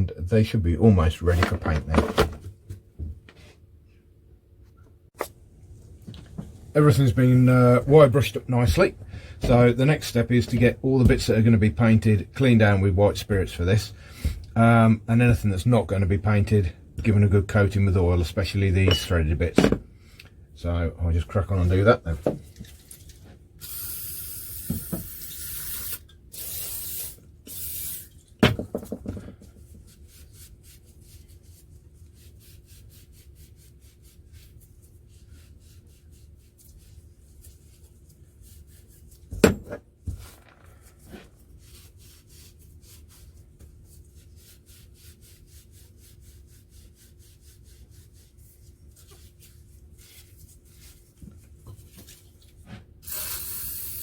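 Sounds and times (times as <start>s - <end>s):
short hissing sprays: 23.6s - 28.1s, 53.0s - 54.0s
quiet wiping: 29.4s - 39.3s, 40.0s - 52.9s.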